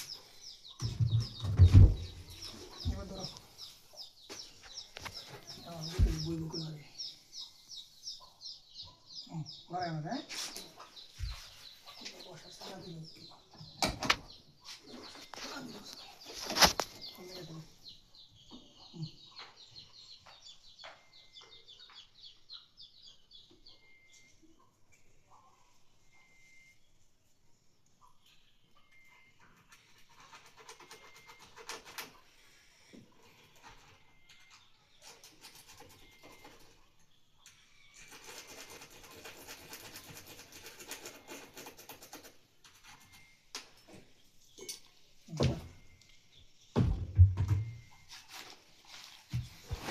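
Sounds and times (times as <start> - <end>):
small birds chirping: 0.0 - 49.9
scratching and rubbing with clicks: 37.8 - 43.4.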